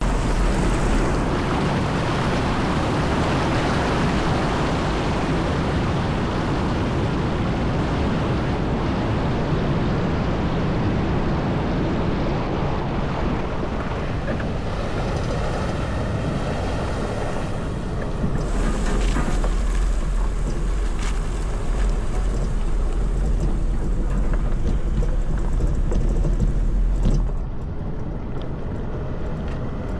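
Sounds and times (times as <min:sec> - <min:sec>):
vehicle engine: 0:00.0 - 0:06.7, 0:13.6 - 0:29.9
water rushing and splashing: 0:00.0 - 0:27.7.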